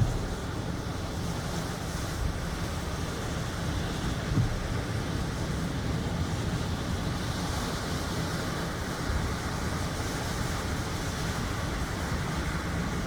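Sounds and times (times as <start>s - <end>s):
sea waves washing: 0.0s - 1.6s
wind buffeting microphone: 0.0s - 6.5s.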